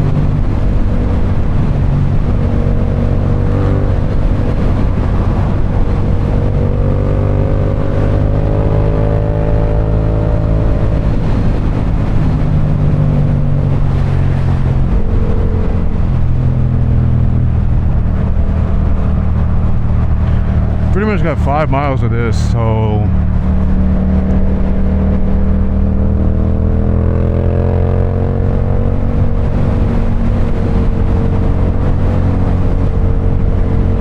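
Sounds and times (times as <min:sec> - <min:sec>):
motorcycle engine cruising: 0:00.0 - 0:21.4
road and wind rush: 0:00.0 - 0:34.0.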